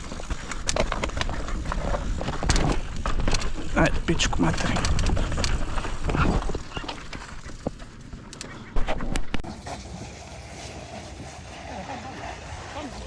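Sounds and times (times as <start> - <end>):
mountain bike rattling over rocks: 0.0 - 8.4.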